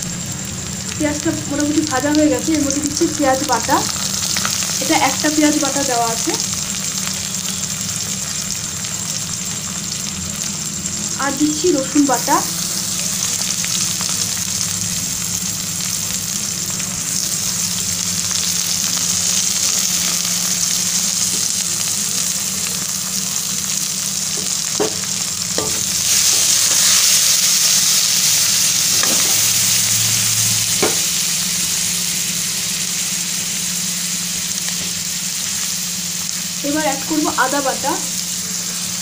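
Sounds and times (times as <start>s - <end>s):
onions sizzling in hot oil: 0.0s - 39.0s
spoon knocking against pan: 24.4s - 25.9s, 30.8s - 31.0s.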